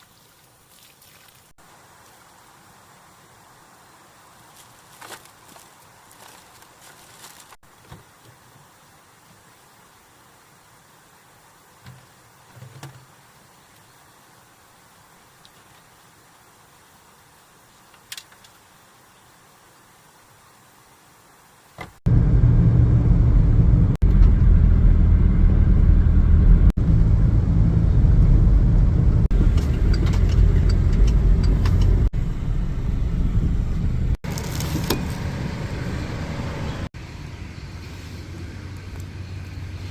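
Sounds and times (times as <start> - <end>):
motor vehicle rumbling: 22.1 - 39.9.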